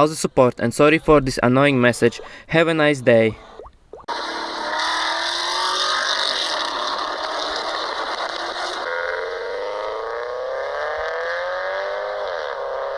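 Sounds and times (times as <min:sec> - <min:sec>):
car engine accelerating hard: 0:04.1 - 0:12.9.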